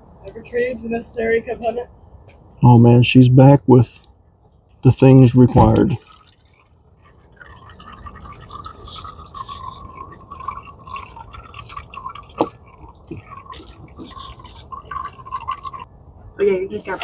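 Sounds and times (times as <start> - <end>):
oil trickling into drain pan: 5.8 - 15.9.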